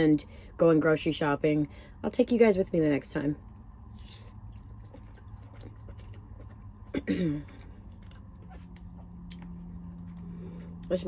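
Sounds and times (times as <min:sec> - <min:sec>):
low steady hum: 0:00.0 - 0:11.0
person chewing food: 0:03.5 - 0:10.9.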